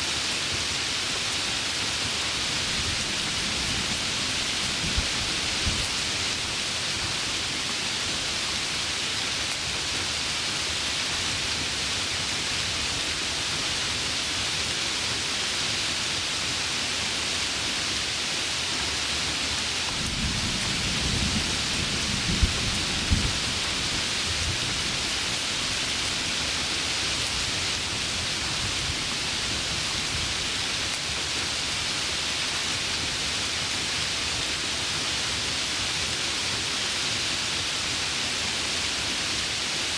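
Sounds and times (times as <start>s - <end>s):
heavy rain falling: 0.0s - 39.9s
thunder rumbling with cracks: 20.0s - 23.8s.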